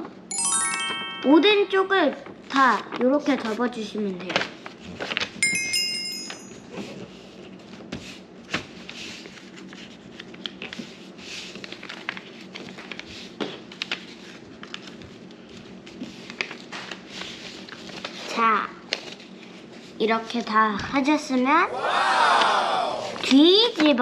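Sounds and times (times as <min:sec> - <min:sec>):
short bright chime: 0:00.3 - 0:01.8, 0:05.4 - 0:06.6
paper rustling and scraping: 0:07.0 - 0:20.0.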